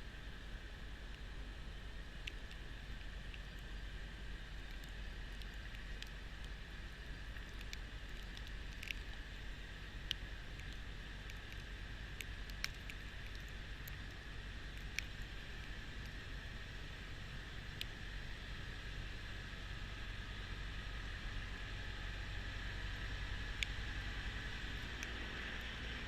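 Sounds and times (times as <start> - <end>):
sharp ticks: 2.1 - 3.8, 4.5 - 9.2, 9.8 - 16.2.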